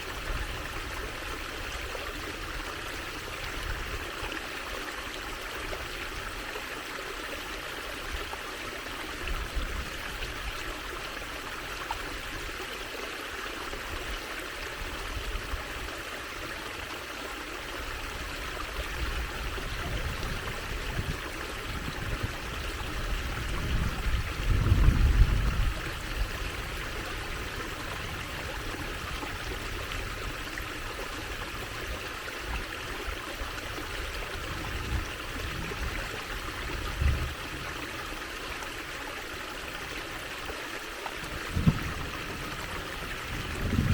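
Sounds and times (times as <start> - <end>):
water trickling and flowing: 0.0 - 43.9.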